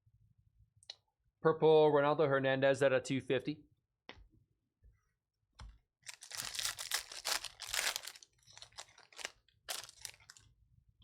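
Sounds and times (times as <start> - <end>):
foil wrapper tearing and crinkling: 6.0 - 10.4.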